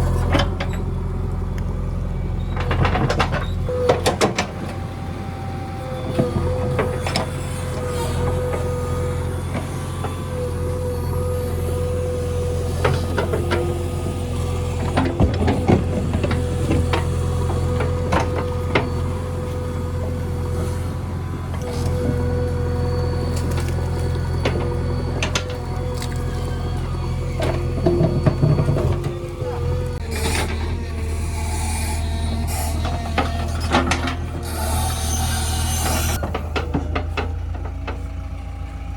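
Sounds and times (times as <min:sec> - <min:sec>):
diesel engine running: 0:00.0 - 0:38.9
squeaks and metallic knocks: 0:02.3 - 0:04.4, 0:21.6 - 0:30.8
metallic clanks and rattles: 0:02.4 - 0:04.6.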